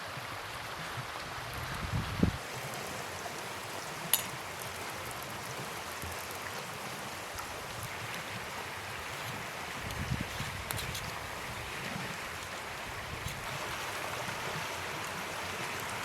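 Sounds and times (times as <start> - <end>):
river rushing: 2.4 - 16.0.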